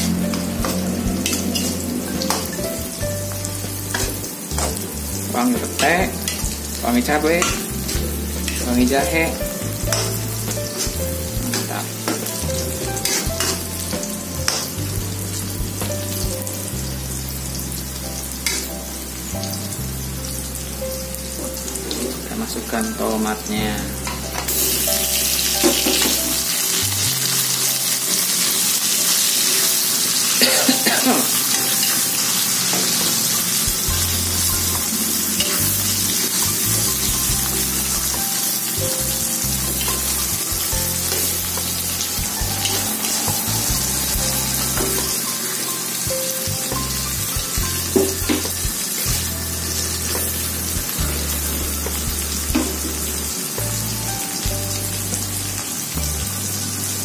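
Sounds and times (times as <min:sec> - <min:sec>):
spatula scraping and knocking pan: 0:00.0 - 0:06.8, 0:07.4 - 0:15.0
food sizzling in hot oil: 0:00.0 - 0:57.0.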